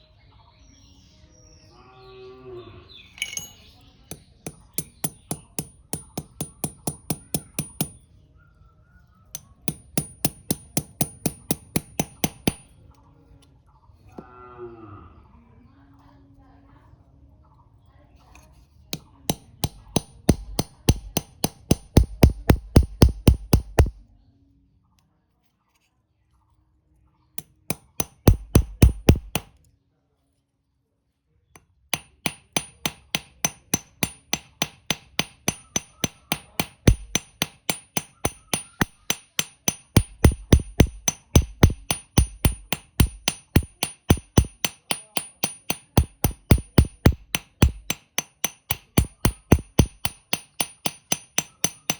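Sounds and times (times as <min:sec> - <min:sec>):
hammer striking steel on anvil: 0:03.2 - 0:08.0, 0:09.3 - 0:12.7, 0:18.9 - 0:24.0, 0:27.4 - 0:29.5, 0:31.9 - 0:51.9.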